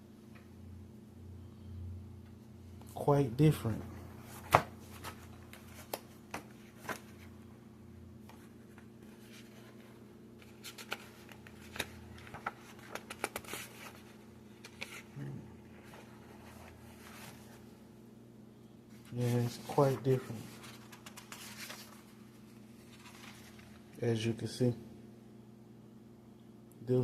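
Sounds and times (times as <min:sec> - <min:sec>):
steady low hum: 0:00.0 - 0:27.0
paper rustling: 0:04.2 - 0:07.3, 0:08.2 - 0:17.7, 0:19.0 - 0:24.0.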